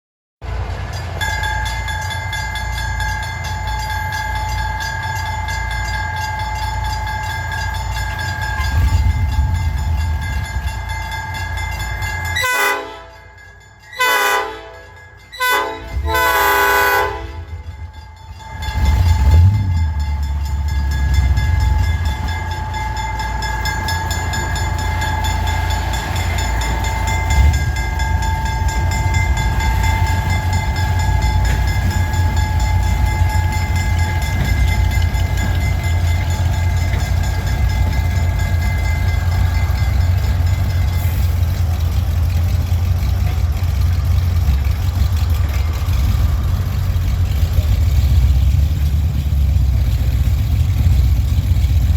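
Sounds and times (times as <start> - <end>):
diesel locomotive engine rumble: 0.4 - 51.9
train horn blasts: 12.4 - 17.7
constant whine: 16.8 - 51.9.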